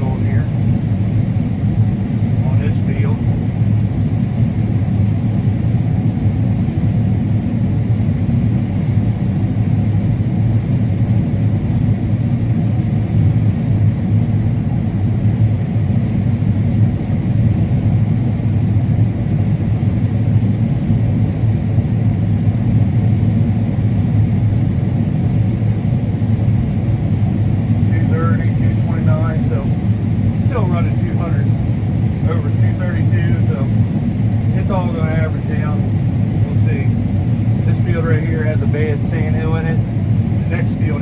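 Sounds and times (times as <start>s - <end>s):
combine harvester running: 27.0s - 41.0s.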